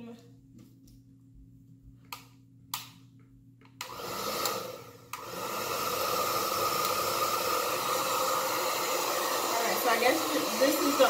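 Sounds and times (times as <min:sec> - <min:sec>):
hair dryer switch click: 0:02.1 - 0:03.0, 0:03.6 - 0:05.5, 0:06.7 - 0:07.2
hair dryer blowing: 0:03.8 - 0:11.0.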